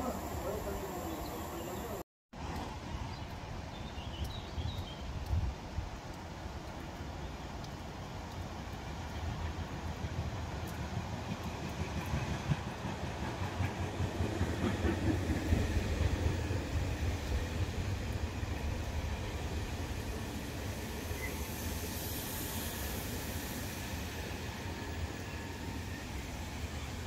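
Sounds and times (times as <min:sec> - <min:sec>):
high hiss: 0:00.0 - 0:02.0, 0:20.3 - 0:27.0
train wheels rumbling on rails: 0:07.8 - 0:27.0.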